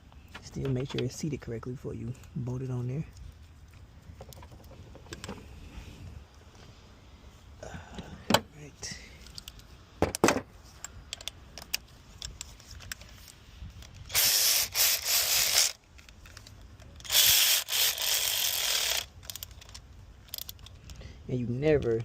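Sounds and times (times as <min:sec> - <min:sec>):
tools clicking: 0:13.8 - 0:21.0
electric ratchet running: 0:14.1 - 0:15.8, 0:17.0 - 0:19.5.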